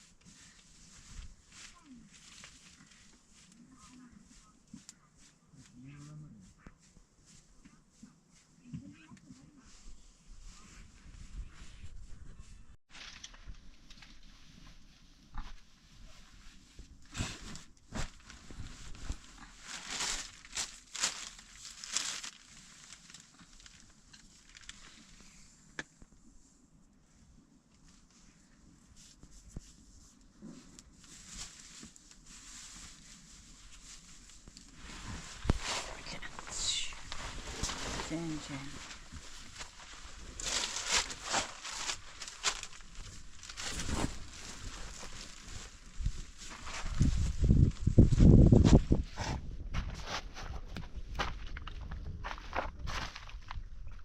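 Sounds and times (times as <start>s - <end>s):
rustling and crinkling handling: 0.0s - 54.0s.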